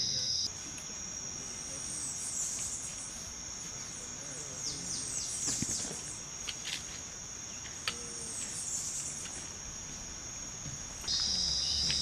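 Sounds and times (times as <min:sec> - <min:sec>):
bird chirps: 0:00.0 - 0:00.5, 0:11.1 - 0:12.0
high-pitched insect trill: 0:00.0 - 0:12.0
lower-pitched insect trill: 0:00.0 - 0:12.0.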